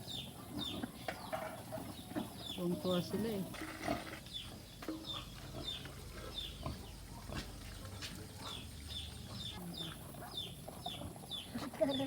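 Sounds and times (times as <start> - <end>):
chicks peeping: 8.4 - 12.0.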